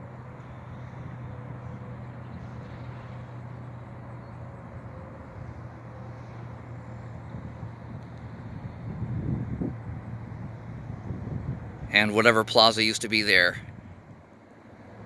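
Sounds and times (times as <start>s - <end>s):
nearby traffic noise: 11.9s - 13.6s.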